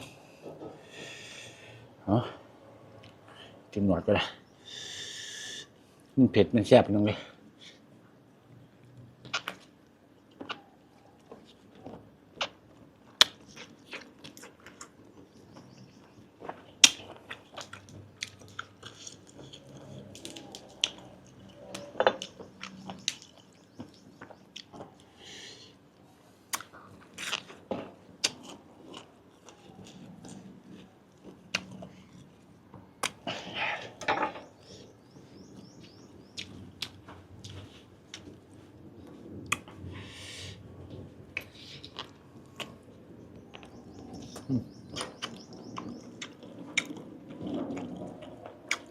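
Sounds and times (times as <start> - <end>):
person chewing: 10.3 - 25.8, 26.5 - 34.1, 35.8 - 38.8, 41.4 - 42.9, 43.5 - 48.9.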